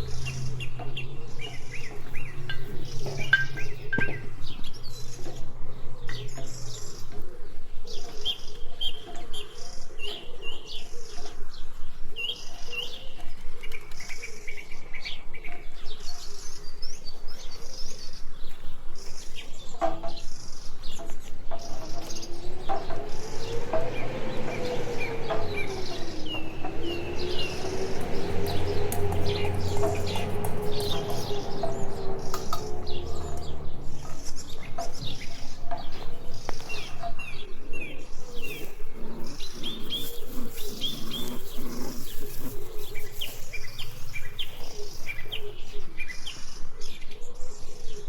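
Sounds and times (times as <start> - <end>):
small birds chirping: 0.0 - 48.0
low tone rising and falling: 21.7 - 36.3.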